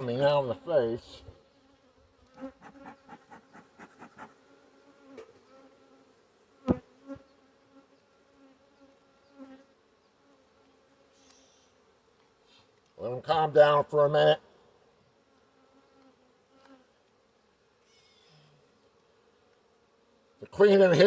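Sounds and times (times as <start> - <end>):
bees buzzing: 2.1 - 7.2
quick ticks: 2.4 - 4.3.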